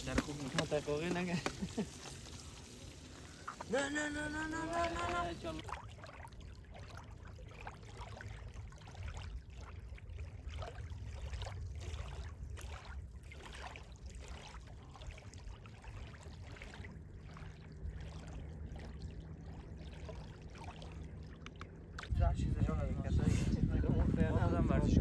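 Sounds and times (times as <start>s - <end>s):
river water running: 0.0s - 22.2s
low rumble: 22.1s - 25.0s.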